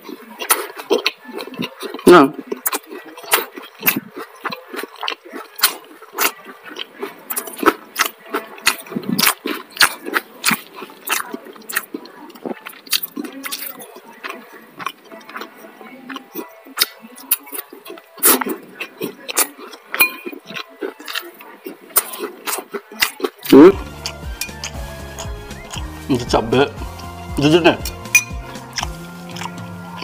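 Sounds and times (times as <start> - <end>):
chewing and lip-smacking: 0.0 - 30.0
spoon scooping in a ceramic bowl: 19.7 - 21.4, 24.0 - 25.3, 28.1 - 29.5.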